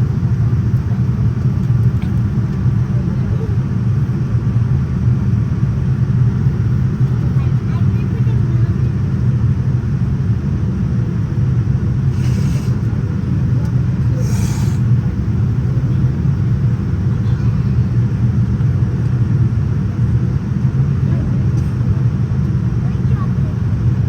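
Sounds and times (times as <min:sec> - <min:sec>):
airliner cabin engine rumble: 0:00.0 - 0:24.0
brief hisses: 0:12.1 - 0:12.9, 0:14.2 - 0:15.0.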